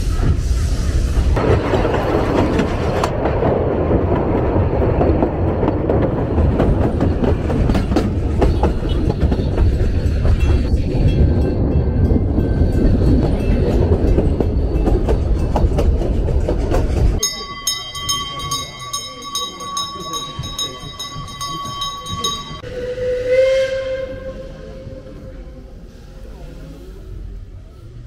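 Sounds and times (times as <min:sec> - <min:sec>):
train carriage rumbling: 0:00.0 - 0:28.0
wheels clicking over rail joints: 0:01.4 - 0:22.6.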